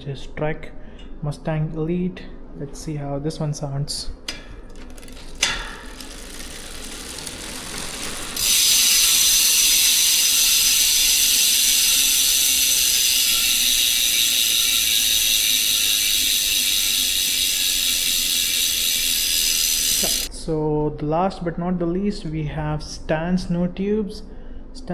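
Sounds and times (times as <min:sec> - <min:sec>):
faint rising whirr: 0:00.0 - 0:20.5
freehub ratcheting buzz: 0:04.3 - 0:20.3.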